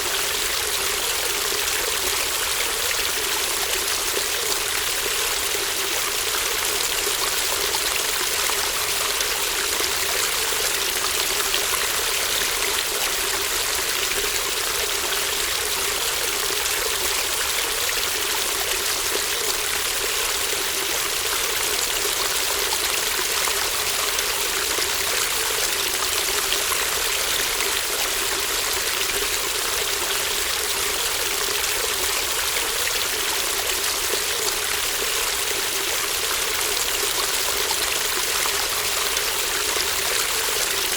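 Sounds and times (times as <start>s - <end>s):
shallow stream babbling: 0.0s - 40.9s.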